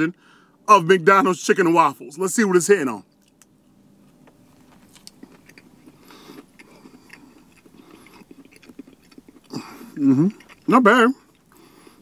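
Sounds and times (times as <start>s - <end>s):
person chewing a sandwich: 3.2s - 12.0s.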